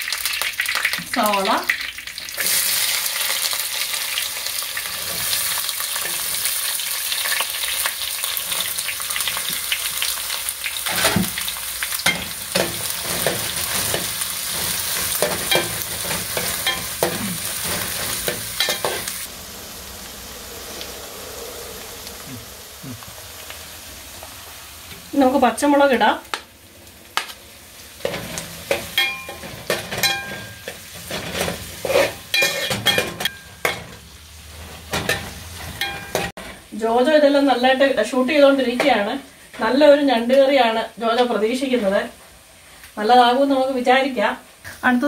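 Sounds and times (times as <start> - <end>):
onions sizzling in oil: 0.0 - 45.0
metal spoon scraping pan: 12.0 - 19.3, 28.0 - 34.0.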